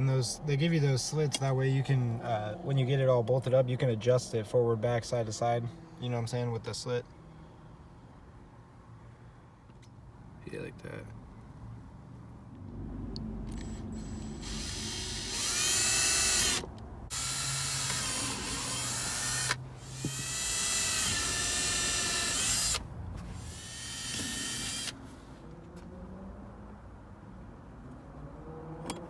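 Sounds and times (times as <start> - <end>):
cordless drill motor whining: 13.5 - 25.0.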